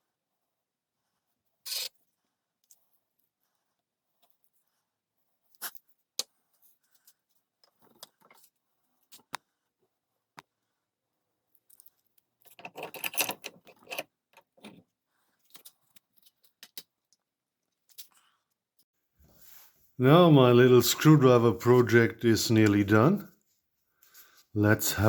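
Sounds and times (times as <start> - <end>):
tools clicking and knocking: 12.4 - 14.9.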